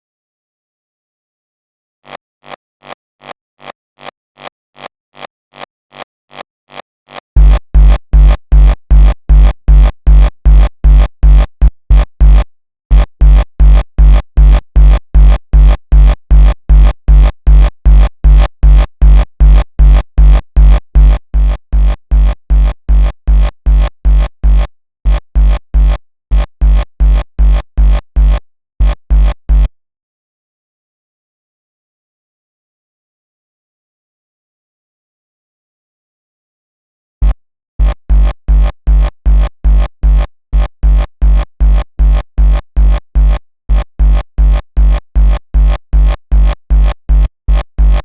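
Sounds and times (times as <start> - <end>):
distorted kick drum thumps: 7.4 - 26.0, 26.6 - 29.7, 37.2 - 48.0.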